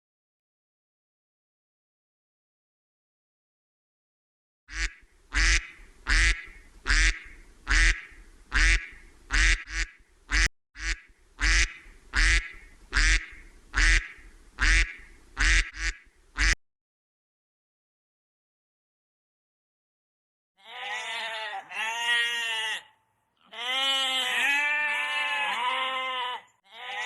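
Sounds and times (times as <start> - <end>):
duck quacking: 4.7 - 16.6.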